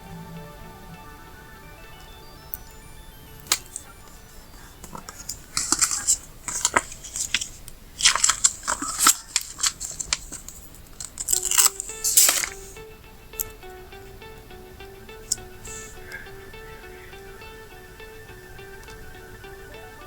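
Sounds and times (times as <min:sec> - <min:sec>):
faint background music: 0:00.0 - 0:20.0
crackly paper rustling: 0:03.5 - 0:12.8.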